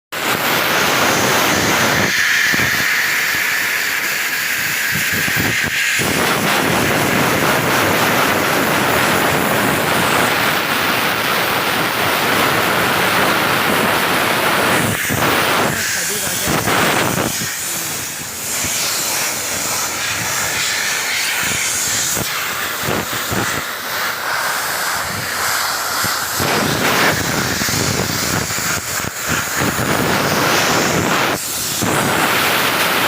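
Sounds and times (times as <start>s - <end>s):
high-pressure air jet hissing: 0.2s - 33.0s.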